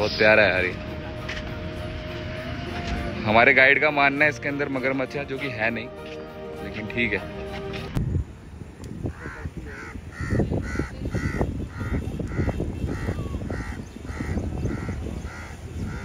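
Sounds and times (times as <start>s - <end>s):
bird calling: 9.1s - 16.0s.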